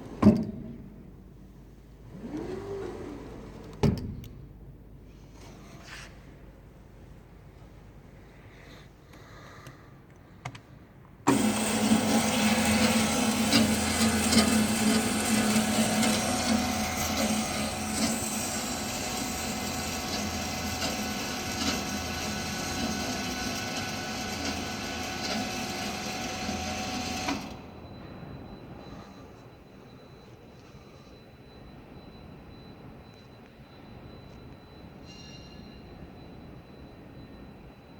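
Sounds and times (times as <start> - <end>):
band saw cutting metal: 11.3 - 27.4.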